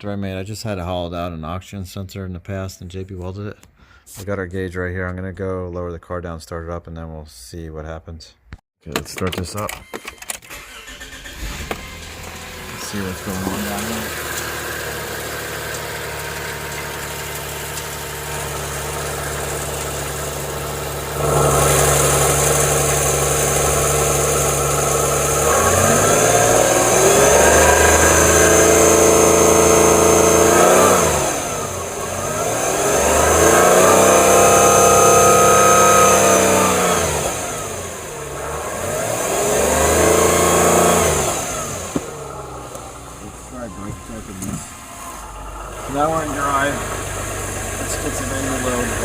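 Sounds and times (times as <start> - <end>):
car engine idling and revving: 10.5 - 49.0.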